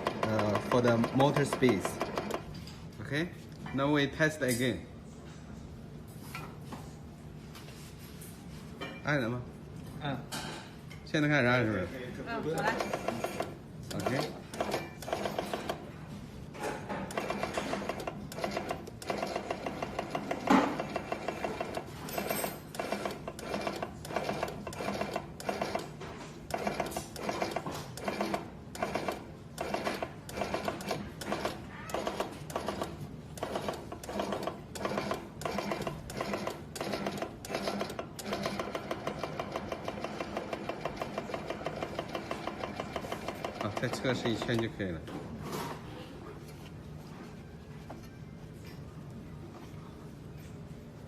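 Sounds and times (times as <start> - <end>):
machine clattering rhythmically: 17.1 - 21.9, 22.7 - 25.8, 26.5 - 44.0.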